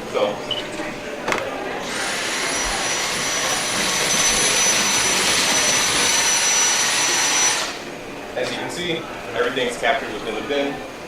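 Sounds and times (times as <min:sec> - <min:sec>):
cordless vacuum cleaner running: 0:01.8 - 0:08.0.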